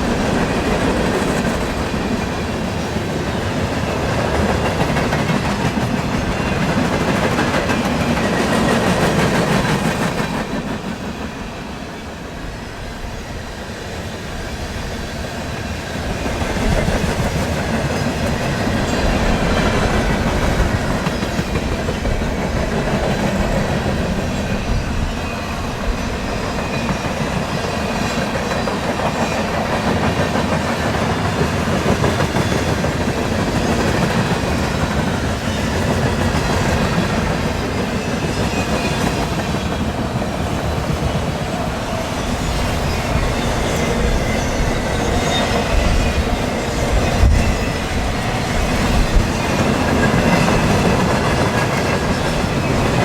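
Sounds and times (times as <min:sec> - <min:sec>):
freight train wheels clacking: 0:00.0 - 0:53.0
wind buffeting microphone: 0:14.6 - 0:53.0.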